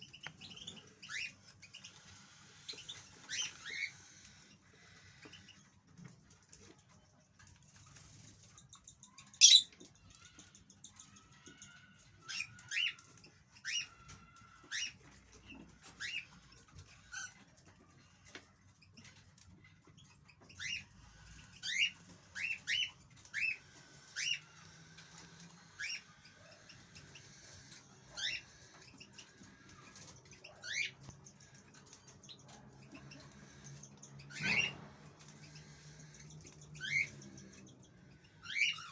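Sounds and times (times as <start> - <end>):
faint bird twittering: 7.8 - 38.9
goldfinch calling: 9.3 - 9.7, 21.5 - 38.9.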